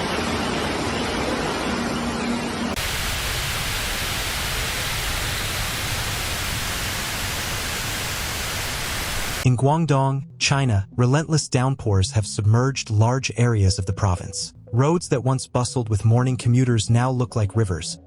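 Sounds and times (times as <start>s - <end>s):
water rushing: 0.0s - 9.4s.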